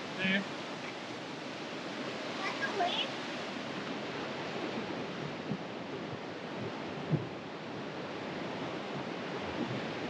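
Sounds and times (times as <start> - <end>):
ocean surf: 0.0 - 10.0
wind: 0.0 - 10.0
wind thumps on microphone: 3.6 - 10.0.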